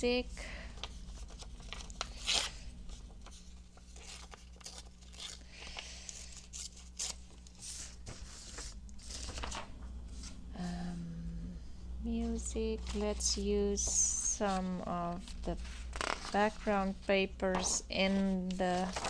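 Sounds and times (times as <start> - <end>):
faint low hum: 0.0 - 19.0
paper rustling and tearing: 0.8 - 10.4, 12.8 - 19.0.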